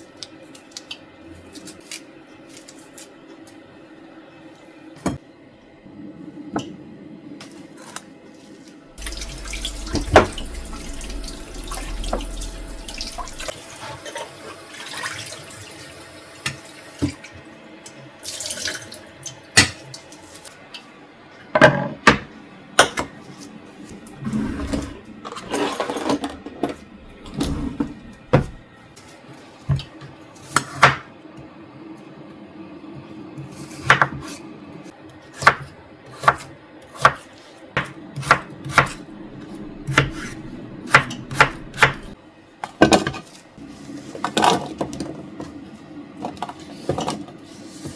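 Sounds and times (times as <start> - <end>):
kitchen items knocking and clattering: 24.8 - 28.7, 39.7 - 42.2.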